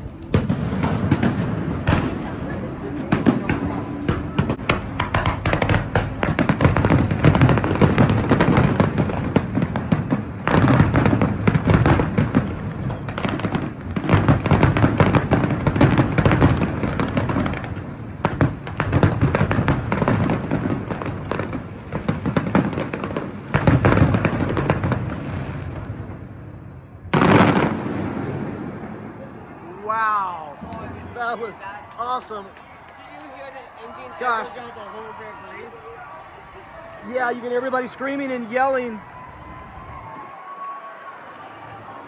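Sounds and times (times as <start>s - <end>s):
fireworks booming and crackling: 0.0s - 29.5s.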